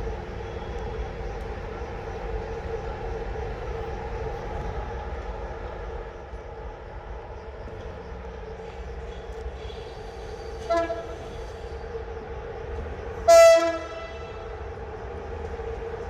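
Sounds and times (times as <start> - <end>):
train rumbling: 0.0 - 16.0
train horn toot: 10.6 - 11.4, 13.2 - 14.6.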